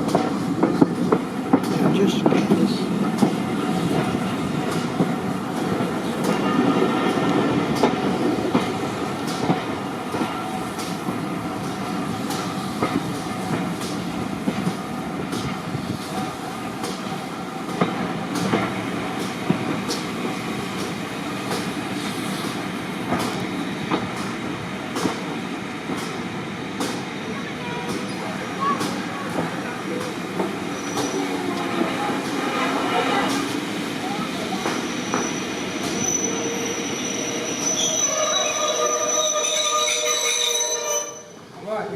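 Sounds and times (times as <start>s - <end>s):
railway carriage rumbling: 0.0s - 41.9s.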